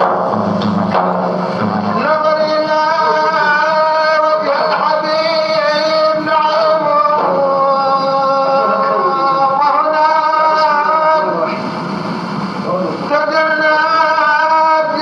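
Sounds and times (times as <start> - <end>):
drum strokes: 0.0 - 8.2
man singing long held notes: 1.8 - 11.6, 13.0 - 15.0.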